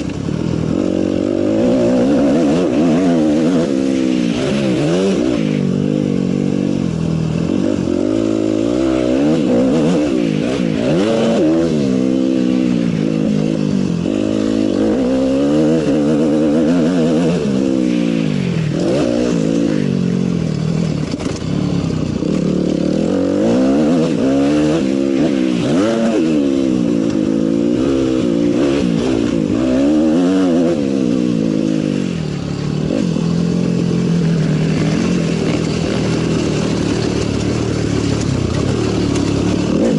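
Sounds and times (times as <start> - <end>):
motocross bikes revving: 0.0 - 39.9.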